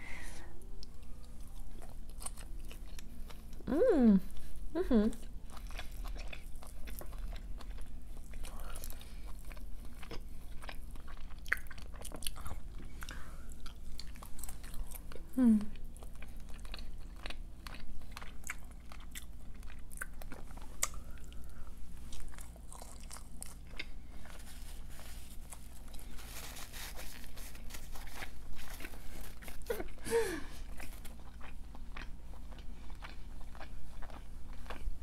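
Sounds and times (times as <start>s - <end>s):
person chewing crunchy food: 0.6s - 3.6s, 5.2s - 35.0s
person humming: 3.6s - 5.2s, 15.4s - 15.7s.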